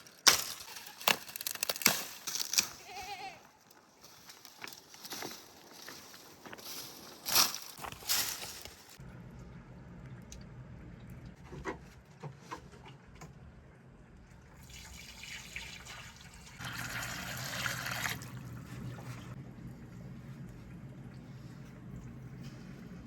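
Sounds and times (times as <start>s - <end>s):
low steady hum: 7.8s - 15.1s, 16.6s - 23.0s
water pouring: 14.2s - 19.4s.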